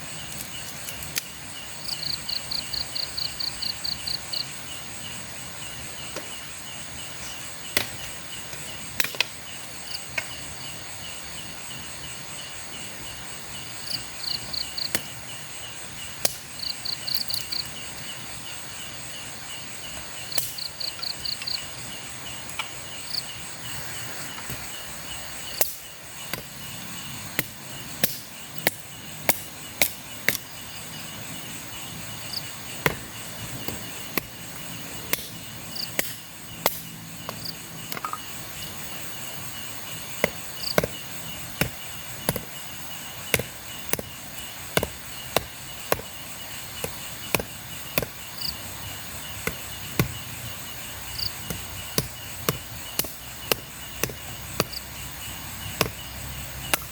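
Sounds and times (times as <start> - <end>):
crickets chirring: 0.0 - 56.9
machete chopping wood: 7.7 - 8.1, 9.0 - 9.4, 25.6 - 26.5, 27.3 - 30.5, 32.8 - 34.4, 35.1 - 38.2, 40.2 - 50.6, 51.2 - 56.0, 56.6 - 56.9.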